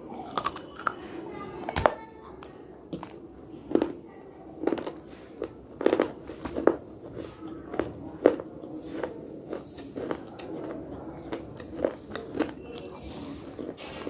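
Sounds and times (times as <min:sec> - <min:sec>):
slate crunching between teeth: 0:00.0 - 0:01.1, 0:04.6 - 0:14.0.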